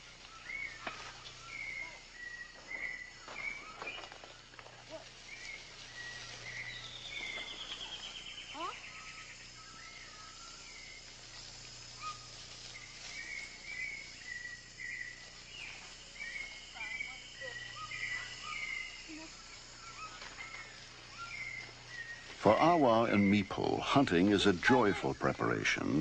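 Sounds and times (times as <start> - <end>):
high insect drone: 0.0 - 26.0
bird chirps and calls: 13.1 - 23.5.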